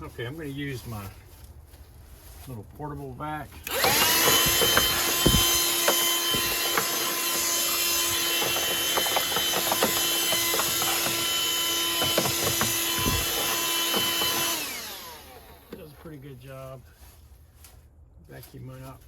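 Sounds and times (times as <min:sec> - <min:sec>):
handheld vacuum whining: 0:03.6 - 0:16.0
grit rattling in vacuum: 0:03.7 - 0:16.0.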